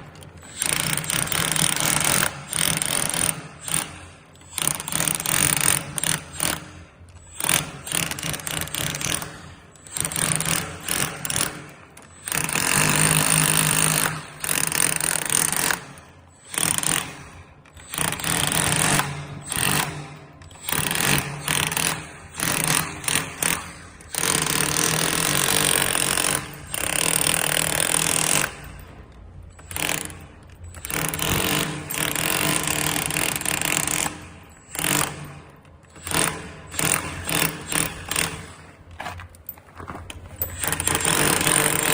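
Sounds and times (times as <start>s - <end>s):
electric chipping hammer: 0.4s - 28.9s, 29.6s - 38.8s, 40.5s - 41.9s.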